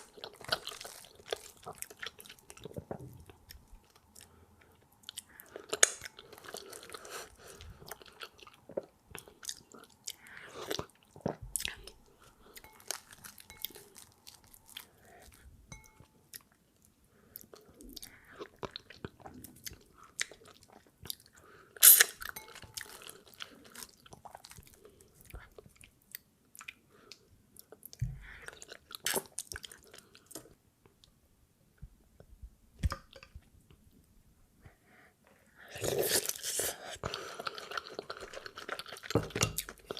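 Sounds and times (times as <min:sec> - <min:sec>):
food being chewed and swallowed: 0:00.0 - 0:16.6, 0:35.7 - 0:39.9.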